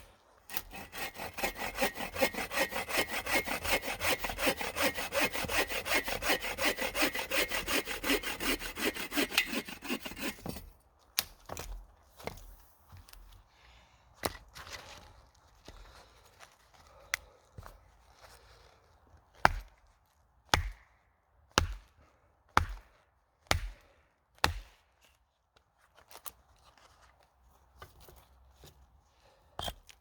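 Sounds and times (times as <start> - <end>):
axe chopping wood: 19.5 - 19.7, 20.5 - 20.8, 21.6 - 21.8, 22.6 - 22.8, 23.5 - 23.8, 24.4 - 24.7.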